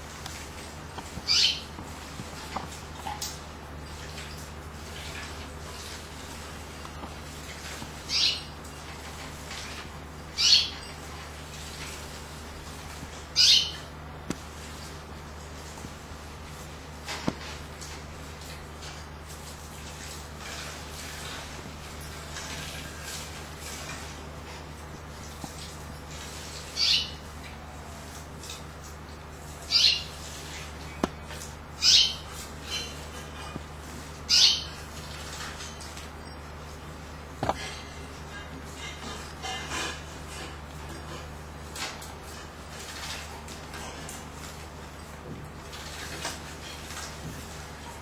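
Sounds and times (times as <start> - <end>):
canary chirps: 1.0 - 1.8, 8.0 - 8.6, 10.3 - 10.9, 13.4 - 13.9, 26.6 - 27.3, 29.5 - 31.2, 31.8 - 33.1, 34.1 - 34.9.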